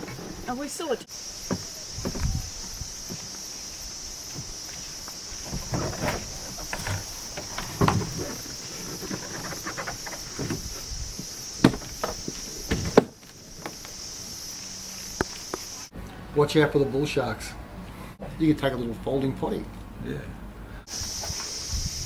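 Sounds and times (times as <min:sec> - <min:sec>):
high-pitched insect drone: 0:01.1 - 0:15.9, 0:20.9 - 0:22.0
knocks and clunks: 0:01.4 - 0:03.3, 0:05.4 - 0:13.8.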